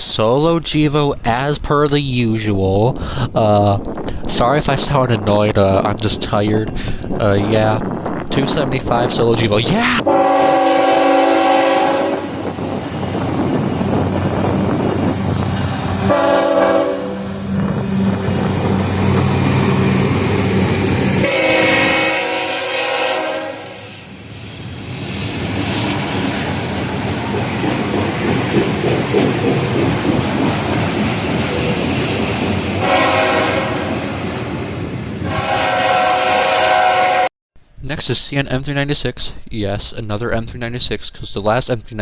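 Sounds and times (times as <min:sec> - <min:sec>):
train wheels rolling on rails: 0:05.9 - 0:35.6
locomotive air horn blasts: 0:10.1 - 0:12.5, 0:16.0 - 0:18.2, 0:21.2 - 0:24.1, 0:32.8 - 0:34.1, 0:35.2 - 0:37.8.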